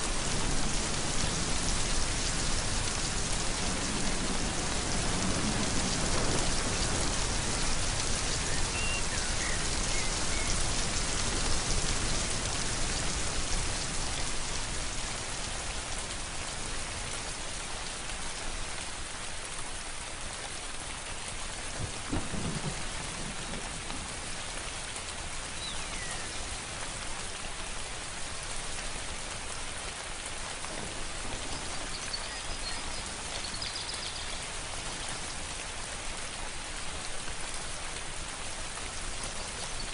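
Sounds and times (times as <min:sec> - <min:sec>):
steady rain falling: 0:00.0 - 0:39.9
thunder rumbling: 0:00.1 - 0:14.1, 0:21.8 - 0:24.4
faint bird chirps: 0:08.5 - 0:10.6, 0:25.6 - 0:26.4.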